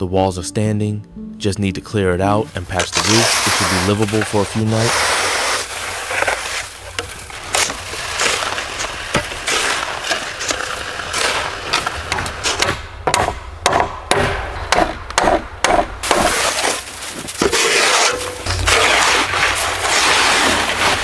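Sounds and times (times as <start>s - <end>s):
rough rustling: 2.4s - 13.0s, 16.0s - 21.0s
wood cracking and knocking: 5.7s - 21.0s.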